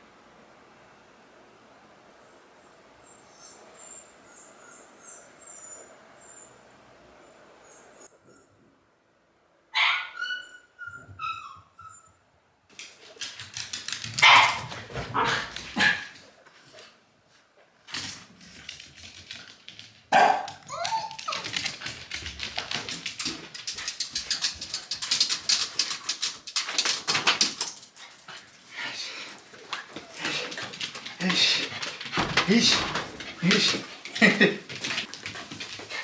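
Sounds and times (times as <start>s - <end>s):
dog whining and crying: 9.8s - 12.2s, 20.7s - 21.5s
fast scratchy clicking: 21.1s - 27.9s.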